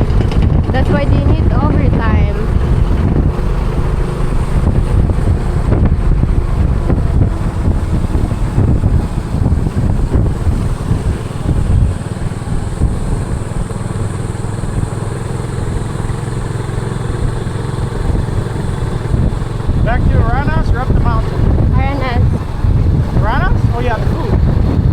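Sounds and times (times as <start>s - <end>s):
motorcycle engine running: 0.0s - 24.9s
wind rumble on microphone: 0.0s - 24.9s.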